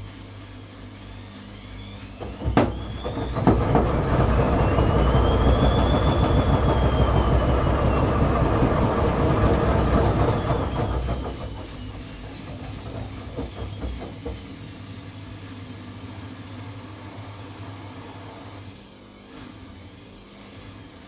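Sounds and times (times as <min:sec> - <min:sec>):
drum motor whine: 0:02.0 - 0:15.3
rumble of turning drum: 0:02.1 - 0:15.7
washing machine clicks: 0:02.2 - 0:14.9.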